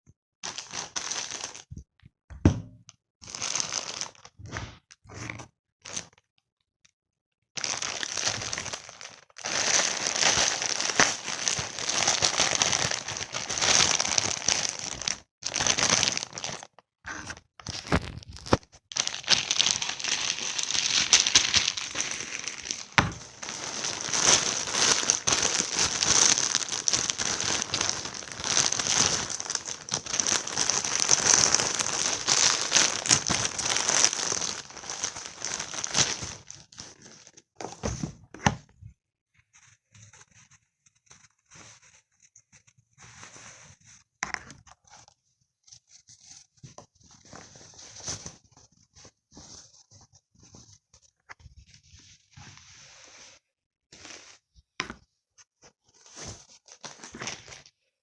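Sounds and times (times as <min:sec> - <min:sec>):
packaging crinkling and tearing: 0:00.4 - 0:01.7, 0:03.3 - 0:04.3, 0:07.6 - 0:37.4.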